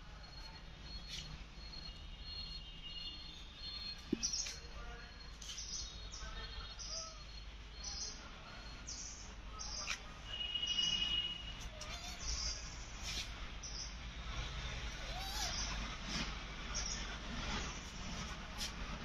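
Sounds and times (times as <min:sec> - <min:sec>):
small birds chirping: 0:00.2 - 0:14.0, 0:14.9 - 0:15.9, 0:16.7 - 0:17.2.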